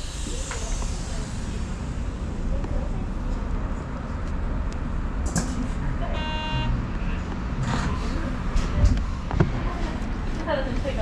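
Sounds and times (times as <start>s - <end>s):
train rumbling on board: 0.0s - 11.0s
short electronic beep: 6.2s - 6.7s.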